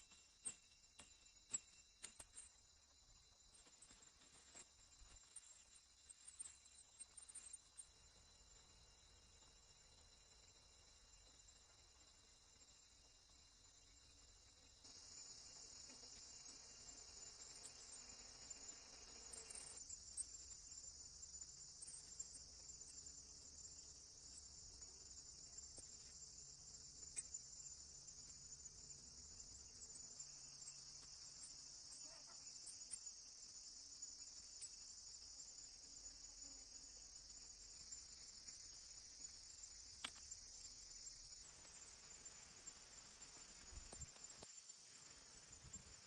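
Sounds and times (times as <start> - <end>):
insects chirring: 0.0 - 46.0
faint ticks: 24.4 - 27.5, 39.8 - 40.8, 43.2 - 44.7.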